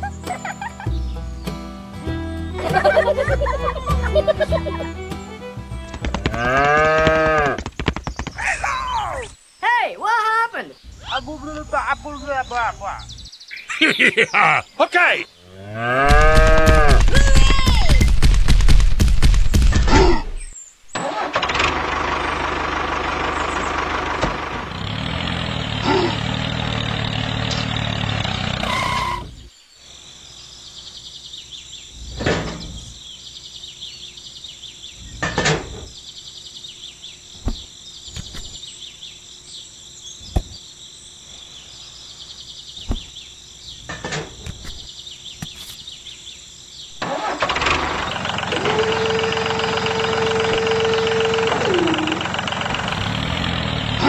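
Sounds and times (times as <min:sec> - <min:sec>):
tractor engine running: 0:00.9 - 0:08.6, 0:16.0 - 0:20.0, 0:21.0 - 0:29.4, 0:47.0 - 0:54.0.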